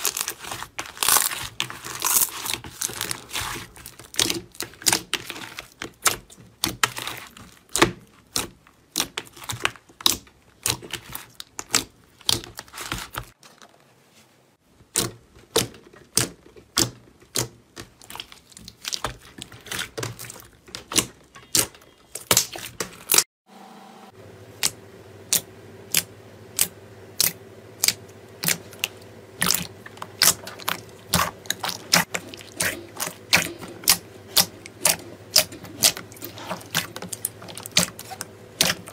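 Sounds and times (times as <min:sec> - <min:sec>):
steady low hum: 0:24.1 - 0:38.9.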